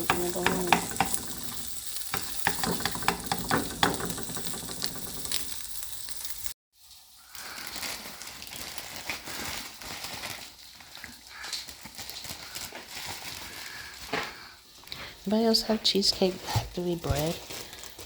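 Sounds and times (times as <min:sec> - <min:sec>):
food sizzling in a pan: 0:00.0 - 0:08.6.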